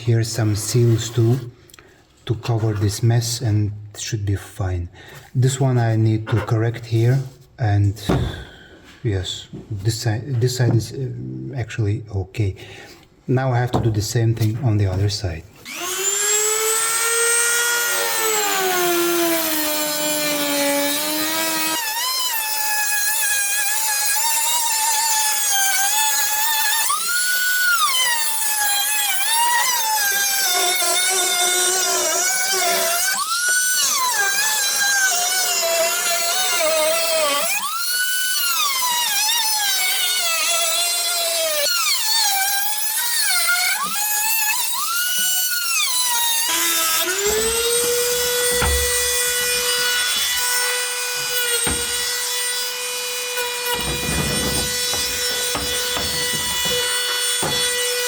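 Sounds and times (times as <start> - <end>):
power cutting tool whining: 15.6 - 58.0.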